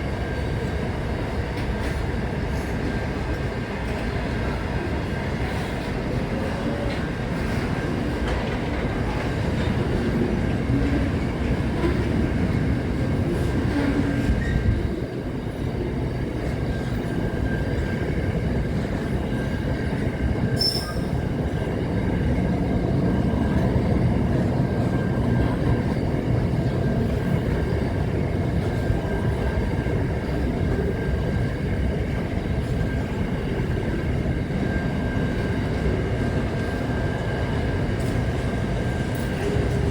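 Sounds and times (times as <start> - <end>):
train rumbling on rails: 0.0 - 39.9
high wheel squeal: 20.6 - 21.2.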